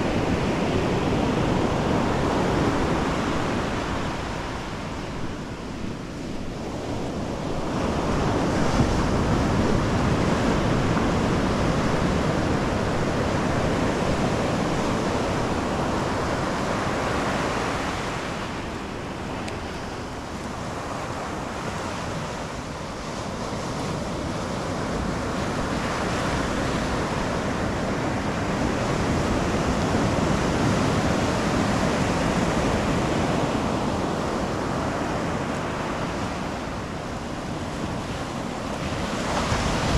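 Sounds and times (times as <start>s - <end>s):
ocean surf breaking: 0.0s - 39.9s
wind buffeting microphone: 0.0s - 39.9s.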